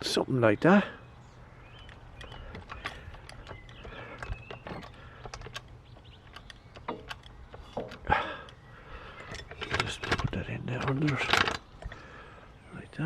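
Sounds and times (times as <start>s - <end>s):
light metallic clicks and knocks: 1.7s - 12.2s.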